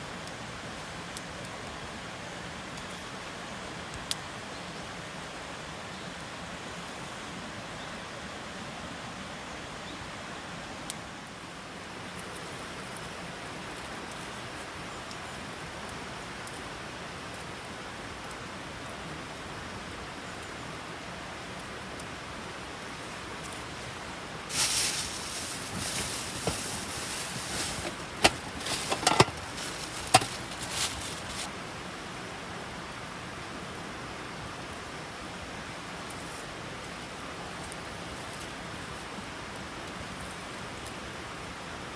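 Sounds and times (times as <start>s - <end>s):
steady rain hiss: 0.0s - 41.9s
rustling: 24.5s - 31.5s.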